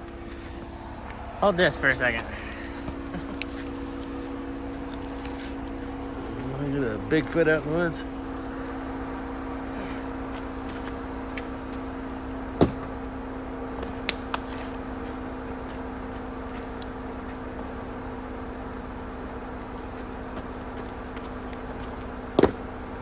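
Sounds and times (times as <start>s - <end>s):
pickup truck idling: 0.0s - 23.0s.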